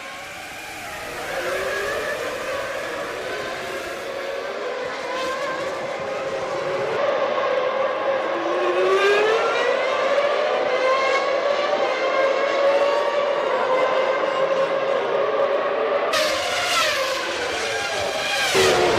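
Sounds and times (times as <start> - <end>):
racing car engines at high revs: 0.0 - 18.9.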